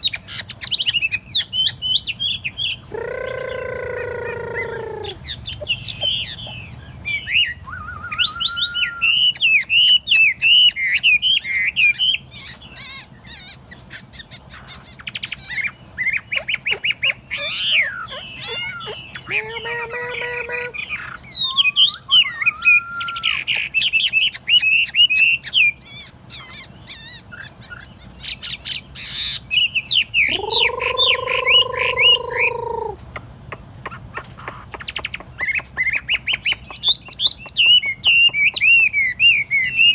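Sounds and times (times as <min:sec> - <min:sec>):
bird drawn-out low call: 0:02.9 - 0:05.2, 0:30.2 - 0:33.0
bird singing whistled phrases: 0:07.1 - 0:19.4, 0:20.2 - 0:33.0.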